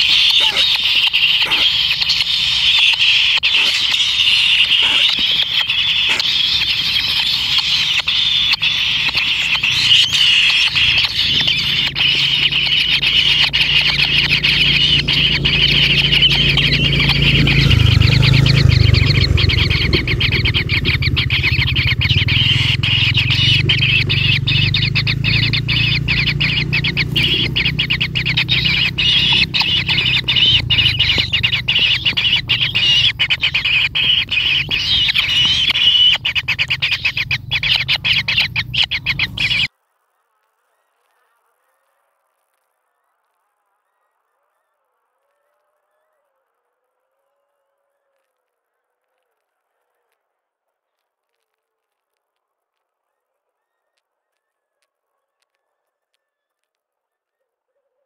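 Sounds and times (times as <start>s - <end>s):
nestlings chattering squeal: 0.0s - 39.7s
low rumble: 12.9s - 39.7s.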